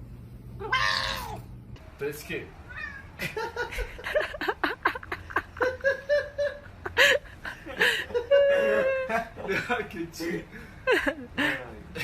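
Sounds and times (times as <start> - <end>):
person laughing: 3.2 - 9.9.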